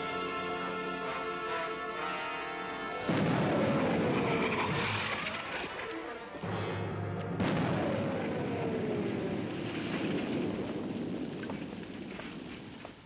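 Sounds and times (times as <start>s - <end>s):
loud blast: 3.0s - 5.6s, 6.4s - 12.2s
rumbling explosions: 3.0s - 5.8s, 6.4s - 13.0s.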